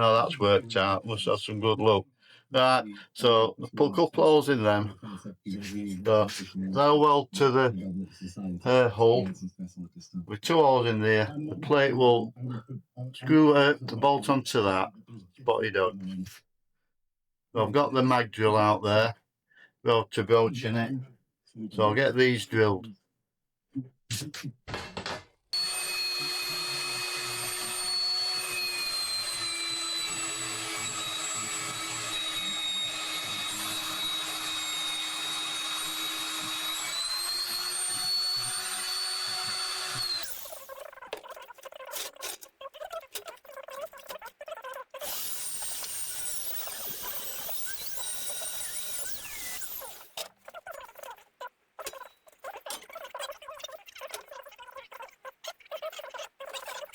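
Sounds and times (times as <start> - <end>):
magnetic drill boring metal: 25.0 - 41.4, 45.0 - 50.3.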